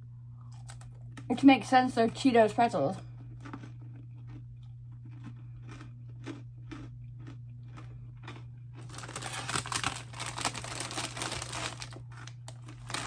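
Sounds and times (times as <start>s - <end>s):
steady low hum: 0.0s - 13.0s
crunchy snack being chewed: 0.3s - 1.3s, 3.0s - 13.0s
snack bag crinkling: 0.4s - 1.3s, 3.1s - 13.0s.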